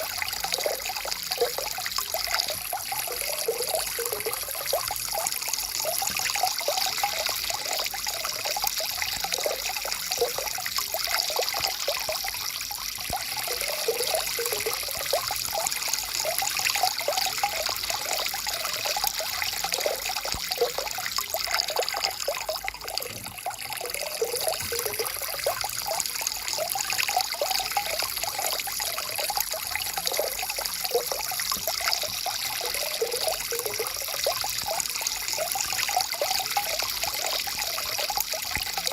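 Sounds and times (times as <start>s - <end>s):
stream trickling over rocks: 0.0s - 38.9s.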